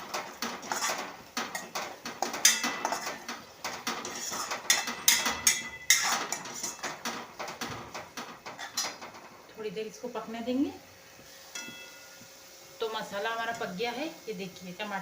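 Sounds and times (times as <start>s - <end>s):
spoon scraping and clinking in pan: 0.0s - 7.7s, 8.4s - 9.1s, 11.5s - 12.2s.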